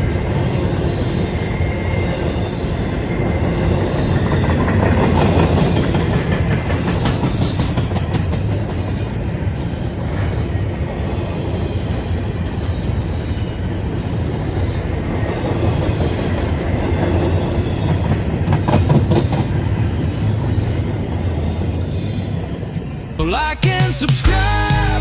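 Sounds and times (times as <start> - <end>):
freight train rumbling past: 0.0 - 23.2
train wheels clacking: 3.6 - 9.6.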